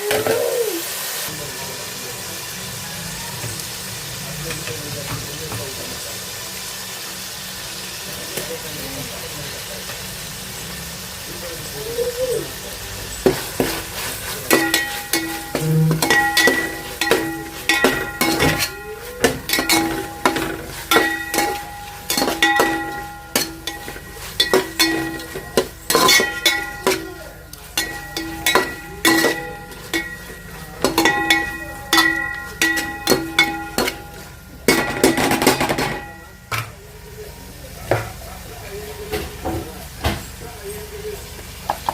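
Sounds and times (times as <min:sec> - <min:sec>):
frying sizzle: 0:00.0 - 0:41.9
metal spoon scraping cooking pot: 0:13.3 - 0:36.1.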